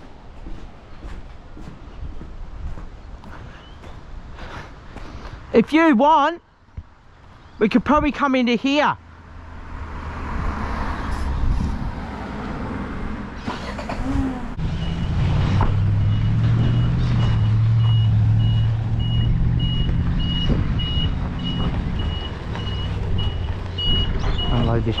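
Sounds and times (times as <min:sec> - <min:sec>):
truck engine running: 0:13.4 - 0:25.0
reversing beeper beeping: 0:14.8 - 0:25.0.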